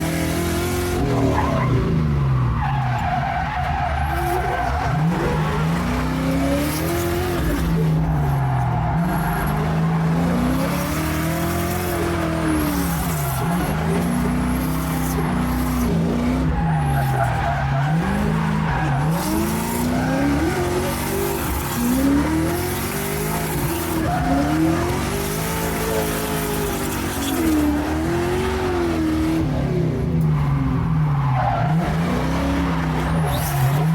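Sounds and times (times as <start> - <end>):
car engine revving: 0.0 - 33.9
second car engine: 0.0 - 33.9
tyres skidding and squealing: 0.0 - 33.9.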